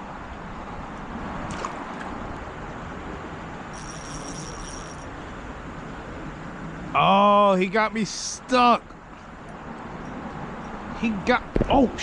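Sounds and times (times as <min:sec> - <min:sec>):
rushing outdoor background noise: 0:00.0 - 0:12.0
thin high-pitched whine: 0:03.7 - 0:05.2.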